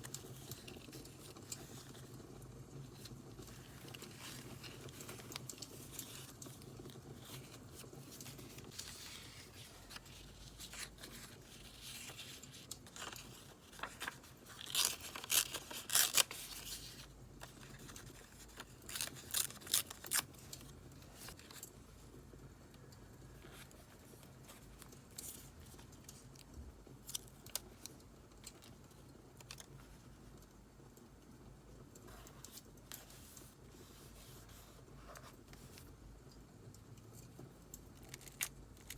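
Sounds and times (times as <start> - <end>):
paper handling noises: 0.0 - 22.1, 23.3 - 30.0, 32.0 - 36.0, 37.6 - 38.9
paper tearing: 13.0 - 17.0.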